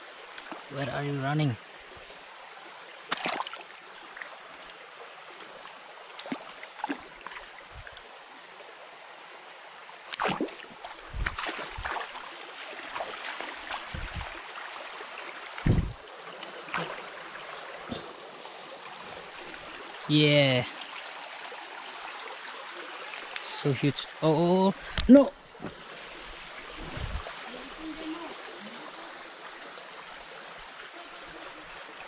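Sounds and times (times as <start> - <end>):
stream water rushing: 0.0 - 32.0
knocks and thumps: 15.6 - 16.0.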